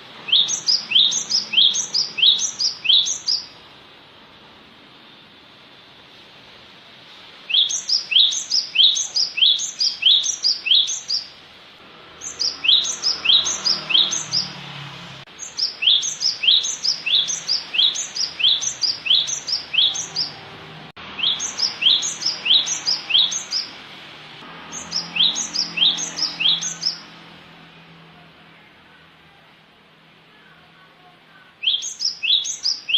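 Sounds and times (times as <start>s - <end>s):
bird song: 0.0s - 3.6s, 7.5s - 11.4s, 12.1s - 14.7s, 15.3s - 23.8s, 24.6s - 27.2s, 30.4s - 32.9s.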